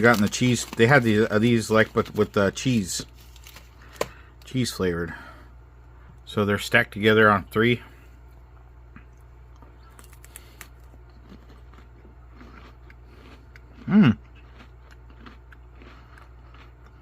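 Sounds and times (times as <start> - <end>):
steady low hum: 0.0 - 17.0
person chewing with crunches: 8.8 - 17.0.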